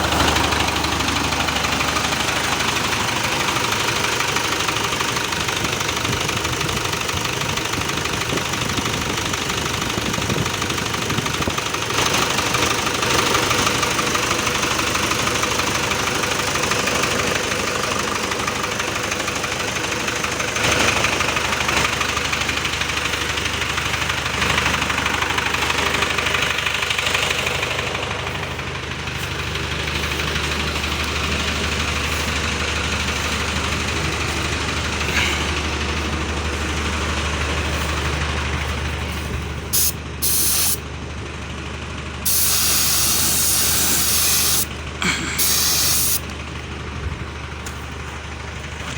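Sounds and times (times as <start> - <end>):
walking tractor engine running: 0.0 - 48.9.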